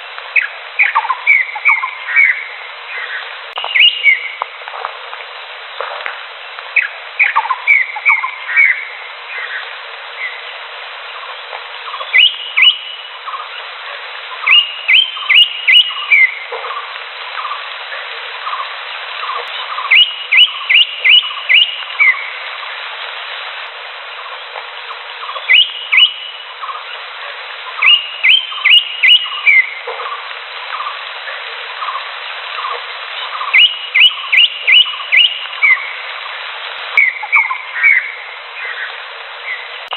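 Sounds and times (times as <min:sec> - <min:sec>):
background hiss: 0:00.0 - 0:39.9
bird whistling rising notes: 0:03.6 - 0:04.4, 0:11.9 - 0:13.1, 0:14.4 - 0:16.4, 0:19.6 - 0:22.3, 0:25.2 - 0:26.5, 0:27.8 - 0:29.8, 0:33.3 - 0:35.9, 0:37.0 - 0:38.1.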